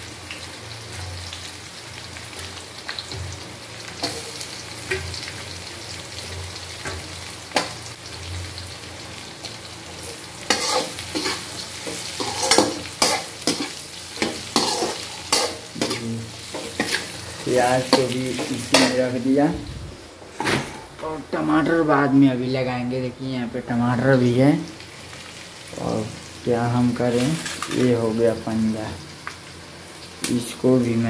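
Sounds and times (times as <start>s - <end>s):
onions sizzling in hot oil: 0.0s - 31.0s
metal spoon scraping a pan: 10.5s - 19.0s.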